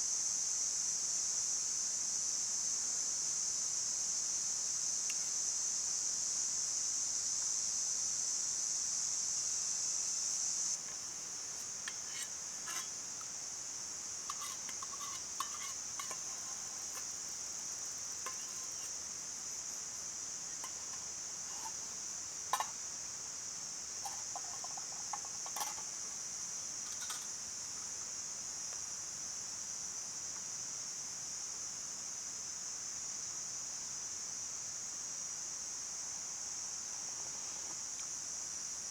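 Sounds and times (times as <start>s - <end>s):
high-pitched insect chorus: 0.0s - 38.9s
light clicks and clinks: 14.3s - 19.1s, 20.6s - 21.9s, 22.5s - 22.8s, 24.0s - 25.9s, 26.8s - 27.4s.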